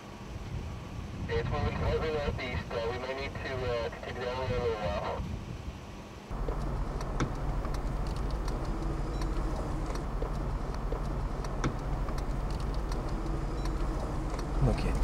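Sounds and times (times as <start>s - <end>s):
light clicks: 6.3s - 15.0s
vehicle engine idling: 6.3s - 15.0s.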